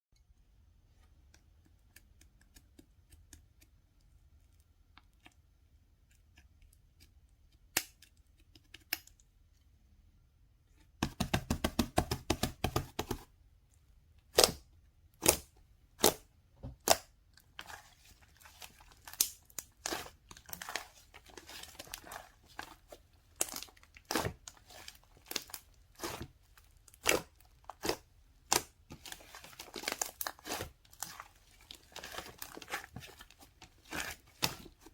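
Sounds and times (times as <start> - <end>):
packaging crinkling and tearing: 28.9 - 34.9.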